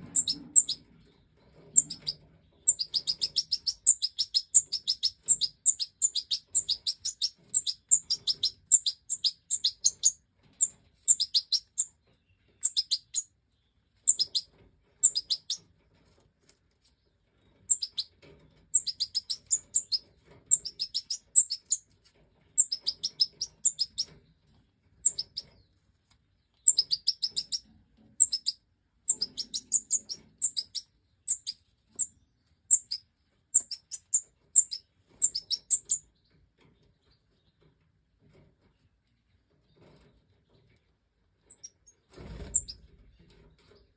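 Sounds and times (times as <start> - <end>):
goldfinch chirping: 0.0 - 13.3, 14.0 - 15.7, 17.6 - 21.8, 22.6 - 24.2, 25.0 - 25.6, 26.6 - 36.2, 41.5 - 42.8.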